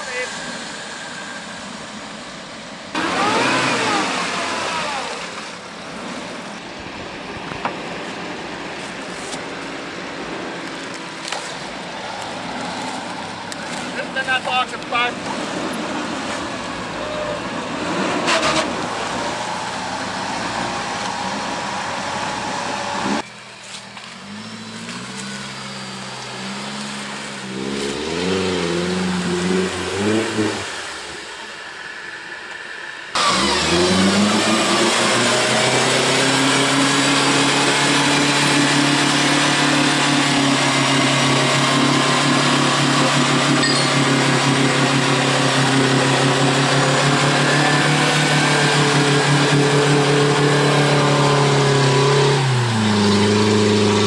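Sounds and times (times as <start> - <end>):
off-road engine revving in bursts: 2.9 - 5.3, 17.7 - 19.8, 24.2 - 31.2, 33.2 - 54.0
engine holding raised revs: 2.9 - 6.6, 12.6 - 54.0.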